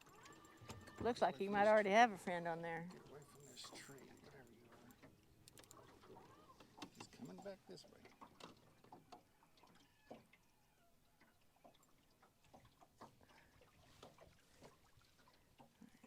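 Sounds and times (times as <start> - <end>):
faint clicks and knocks: 2.9 - 10.4.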